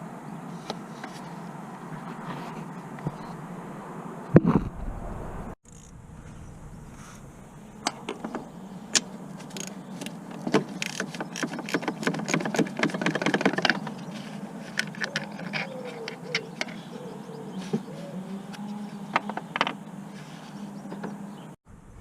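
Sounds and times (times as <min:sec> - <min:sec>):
ratchet clicking: 0:05.7 - 0:06.0.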